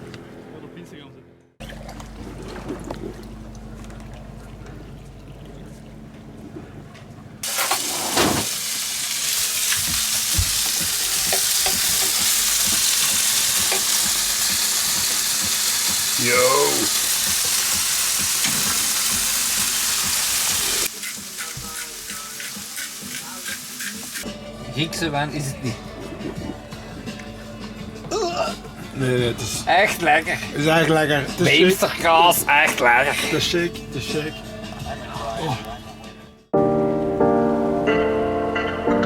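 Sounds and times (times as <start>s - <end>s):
food sizzling in a hot pan: 7.4s - 24.3s.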